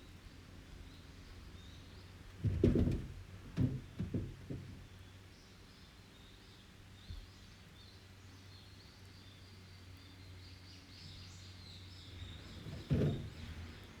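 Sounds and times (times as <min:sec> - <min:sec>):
songbirds chirping: 0:04.5 - 0:14.0.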